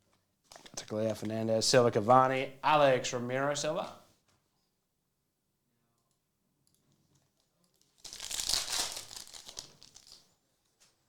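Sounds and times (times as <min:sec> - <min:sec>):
wrapper tearing and crinkling: 0:07.8 - 0:10.3.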